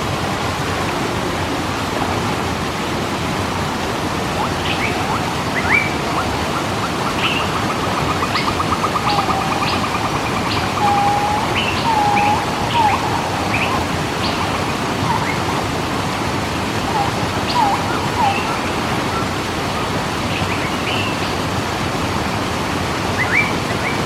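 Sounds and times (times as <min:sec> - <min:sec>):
waterfall rushing: 0:01.1 - 0:24.0
low bird whistles: 0:04.4 - 0:15.7
bird trill: 0:04.4 - 0:21.4
birds chirping: 0:04.4 - 0:24.0.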